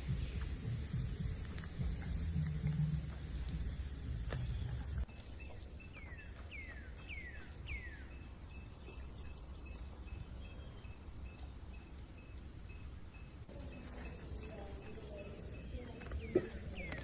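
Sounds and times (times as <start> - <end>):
high insect drone: 0.0 - 5.1.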